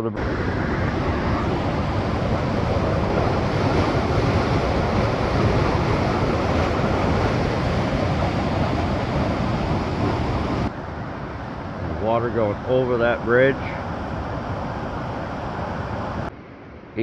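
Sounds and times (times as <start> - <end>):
river water rushing over falls: 0.0 - 10.7.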